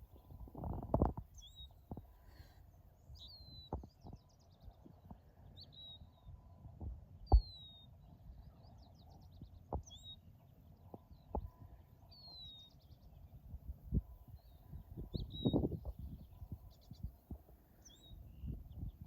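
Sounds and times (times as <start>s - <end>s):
birds chirping: 0.0s - 6.6s, 7.2s - 13.4s, 14.3s - 19.0s
faint steady background noise: 0.0s - 19.0s
bird trills: 1.3s - 4.8s, 7.3s - 10.3s, 11.0s - 13.2s.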